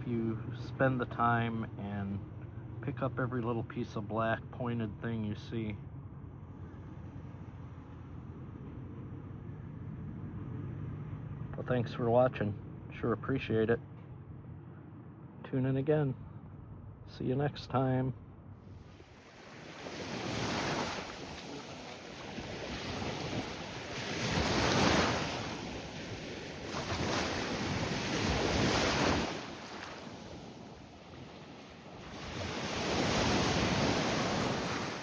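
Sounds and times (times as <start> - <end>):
wind buffeting microphone: 18.2 - 35.0
waves breaking on a beach: 18.8 - 35.0.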